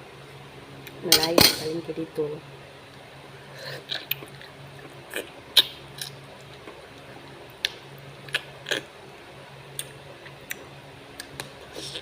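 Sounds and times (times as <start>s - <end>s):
steady low hum: 0.0s - 12.0s
eating clicks and mouth noises: 3.8s - 8.9s.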